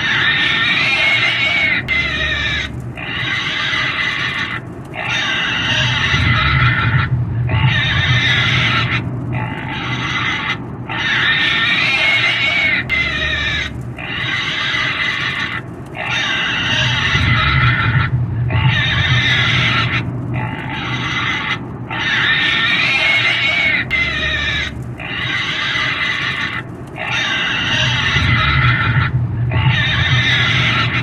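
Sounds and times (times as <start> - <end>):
pig squealing: 0.0 - 31.0.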